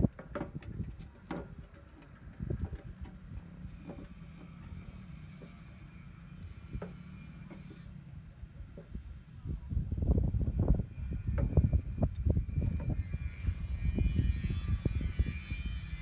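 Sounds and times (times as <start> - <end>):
wind buffeting the microphone: 0.0 - 4.0, 8.4 - 16.0.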